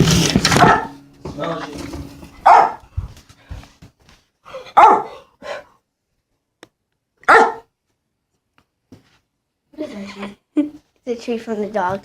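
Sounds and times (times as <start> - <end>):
dog barking: 0.5 - 1.0, 2.4 - 2.9, 4.5 - 5.7, 7.2 - 7.7.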